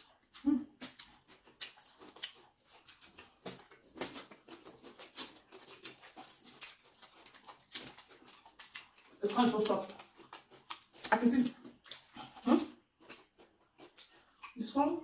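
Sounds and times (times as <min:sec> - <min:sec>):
chewing and lip smacks: 0:00.0 - 0:15.0.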